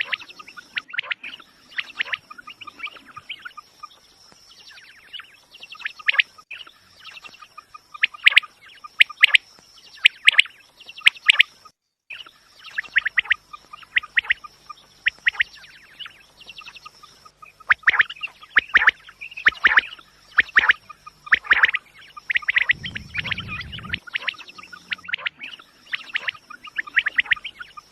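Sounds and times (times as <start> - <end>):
quail calling: 0.0 - 3.6, 12.7 - 27.9.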